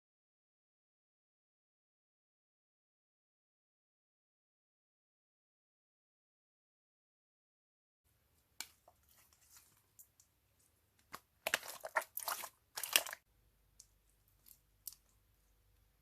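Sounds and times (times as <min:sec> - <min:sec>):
crackly crunching and crinkling: 0:08.6 - 0:15.2.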